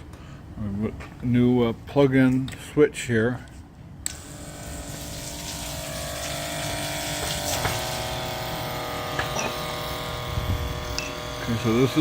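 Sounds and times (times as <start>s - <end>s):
electric water pump humming: 4.1s - 12.0s
water flowing: 4.3s - 8.4s.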